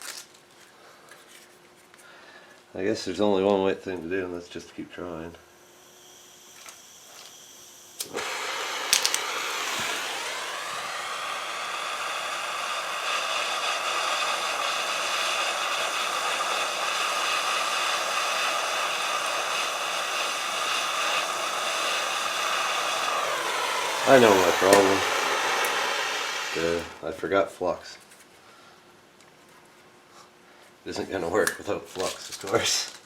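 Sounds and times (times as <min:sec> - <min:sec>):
gas torch hissing: 0:06.0 - 0:27.4.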